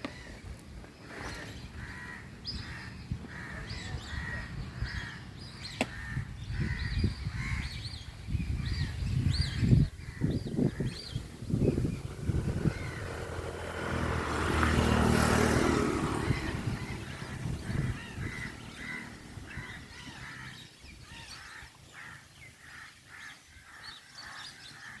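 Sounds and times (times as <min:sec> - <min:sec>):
birds honking: 0:01.1 - 0:07.8, 0:12.6 - 0:14.0, 0:14.8 - 0:25.0.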